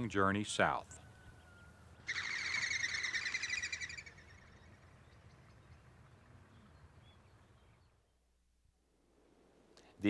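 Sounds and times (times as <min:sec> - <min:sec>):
faint bird chirps: 0:00.9 - 0:08.3
high-pitched bird trill: 0:02.0 - 0:04.8
low outdoor rumble: 0:03.0 - 0:10.0.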